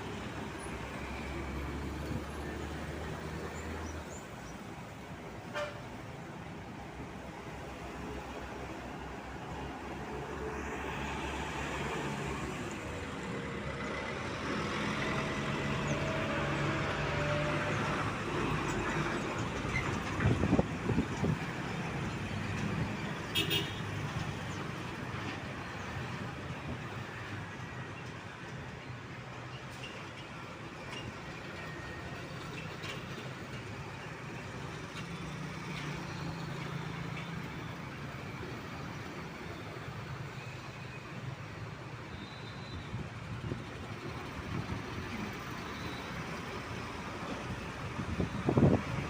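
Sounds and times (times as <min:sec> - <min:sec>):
road traffic: 0:00.0 - 0:49.0.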